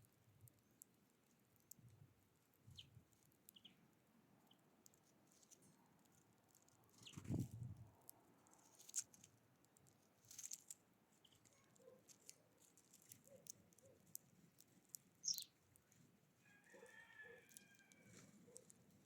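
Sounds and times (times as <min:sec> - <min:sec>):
birds pecking and tapping: 0:00.1 - 0:19.0
high falling chirp: 0:15.2 - 0:15.6.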